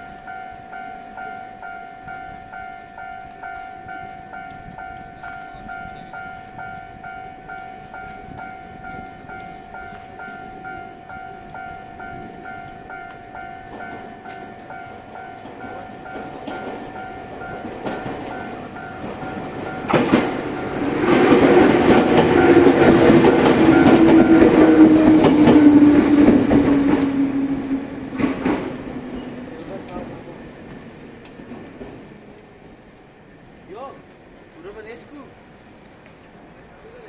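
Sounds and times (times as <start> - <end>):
level crossing alarm: 0.0 - 28.1
low train motor tone: 0.0 - 33.4
wheels clattering over rail joints: 3.3 - 36.1.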